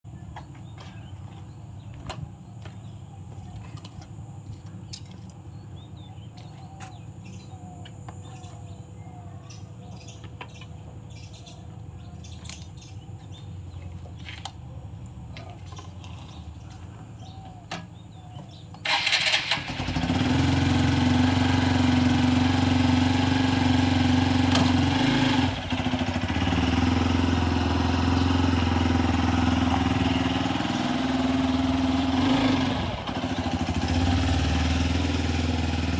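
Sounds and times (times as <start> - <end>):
motorcycle engine starting and running: 9.9 - 35.9.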